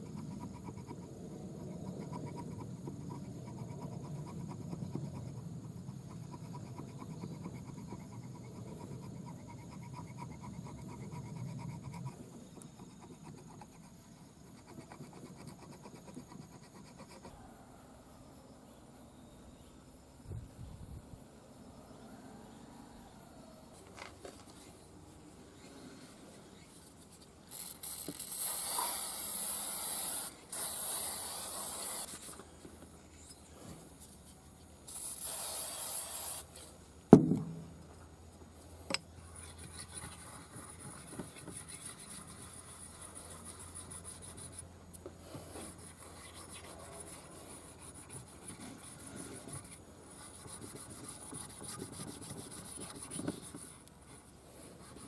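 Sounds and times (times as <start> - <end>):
spraying hiss: 34.9 - 36.5
sharp knock: 37.1 - 37.8.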